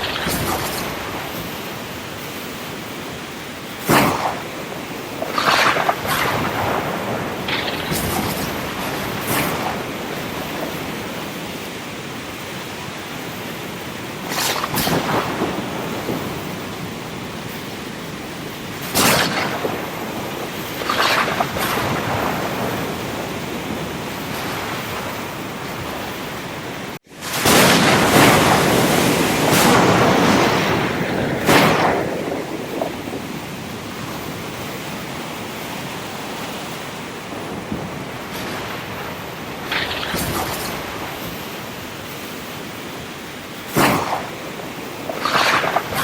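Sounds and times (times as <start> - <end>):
thunder cracks: 0.0 - 2.1, 3.8 - 11.7, 14.0 - 35.0, 37.0 - 42.0
rain: 0.0 - 46.0
surf rushing: 0.0 - 46.0.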